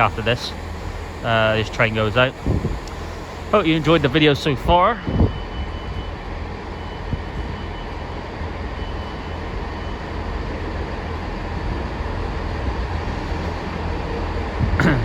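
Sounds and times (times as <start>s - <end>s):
faint high whine: 0.0s - 8.0s
train engine and rail rumble: 0.0s - 15.0s.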